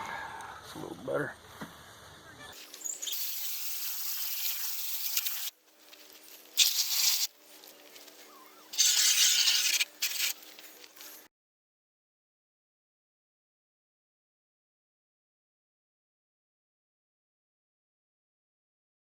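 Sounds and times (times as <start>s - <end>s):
spray hissing: 2.6s - 5.6s, 6.4s - 7.4s, 8.6s - 11.2s.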